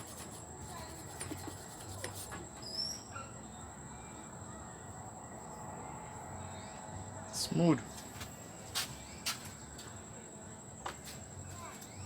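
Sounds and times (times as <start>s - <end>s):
high-pitched insect trill: 0.0s - 7.8s, 11.1s - 12.0s.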